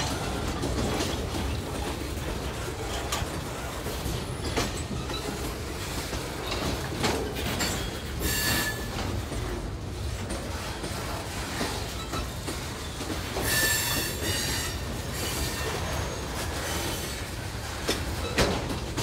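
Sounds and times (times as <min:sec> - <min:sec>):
train cars rumbling past: 0:00.0 - 0:19.0
wheels knocking on rail joints: 0:00.0 - 0:19.0
wheel squeal: 0:04.1 - 0:05.8, 0:07.3 - 0:09.1, 0:11.6 - 0:17.3.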